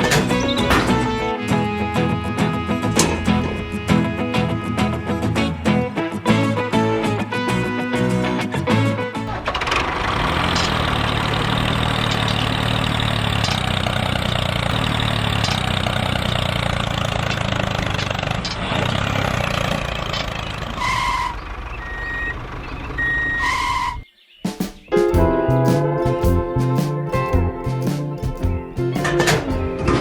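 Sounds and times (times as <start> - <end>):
small engine chugging: 9.4 - 23.9
short electronic beeps: 21.8 - 23.9.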